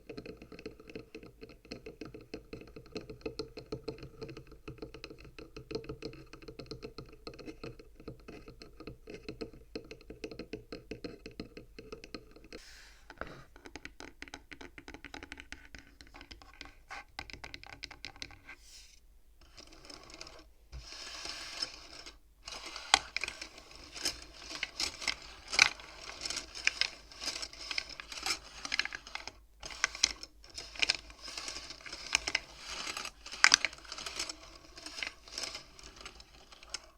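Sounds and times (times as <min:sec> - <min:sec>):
fast tapping on wooden frame: 0:00.2 - 0:12.6, 0:13.6 - 0:18.4
beads clattering along rods: 0:19.4 - 0:36.9.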